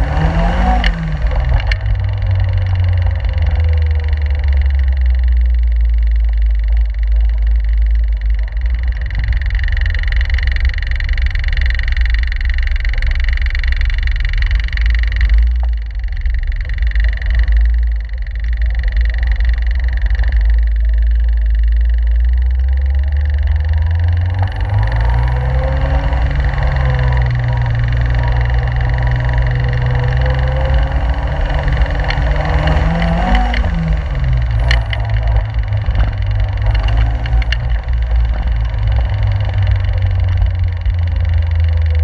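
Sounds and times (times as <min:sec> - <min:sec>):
car engine deep rumble: 0:00.0 - 0:42.0.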